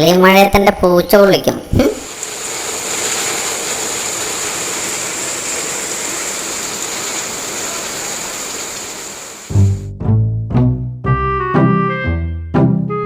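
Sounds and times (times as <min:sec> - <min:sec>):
steady rain hiss: 0:01.1 - 0:09.8
plucked low string music: 0:09.5 - 0:13.0.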